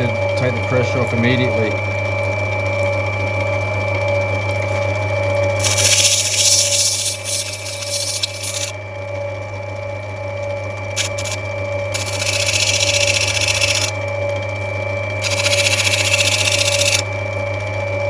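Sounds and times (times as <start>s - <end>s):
grinding wheel motor hum: 5.5s - 8.8s, 11.0s - 17.8s
stone grinding hiss: 5.6s - 8.8s, 11.0s - 14.0s, 15.2s - 17.1s.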